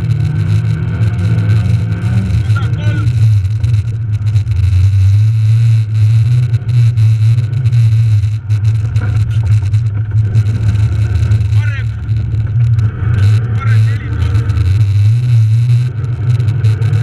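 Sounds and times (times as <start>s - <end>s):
rally car engine running hard: 0.0s - 17.0s.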